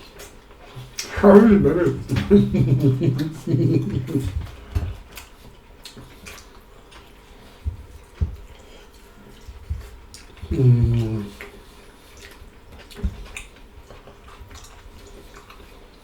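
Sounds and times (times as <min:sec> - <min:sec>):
chewing mouth sounds: 0:00.1 - 0:16.0
person speaking: 0:01.0 - 0:04.5.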